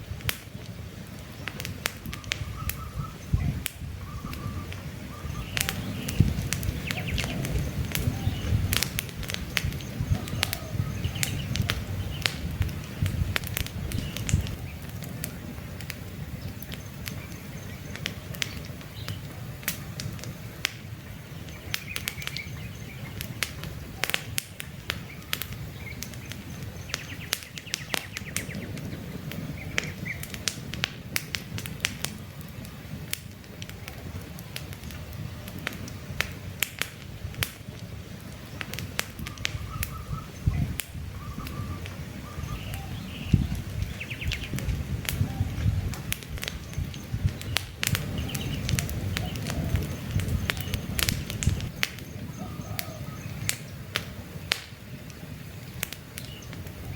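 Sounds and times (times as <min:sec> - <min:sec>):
campfire crackling and popping: 0:00.0 - 0:56.9
faint bird chirps: 0:02.1 - 0:08.6, 0:09.7 - 0:12.3, 0:39.2 - 0:45.9, 0:46.6 - 0:53.7.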